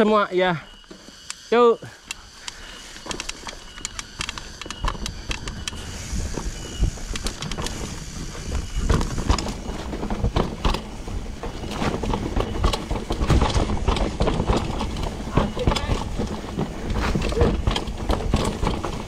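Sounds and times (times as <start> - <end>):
bike clicks and rattles: 1.0 - 19.0
wind buffeting microphone: 3.7 - 19.0
tyre rumble on dirt: 8.5 - 19.0.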